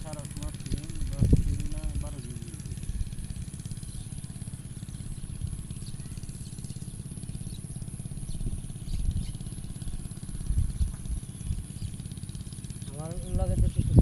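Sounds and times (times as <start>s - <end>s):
engine running with rapid pulsing: 0.0s - 14.0s.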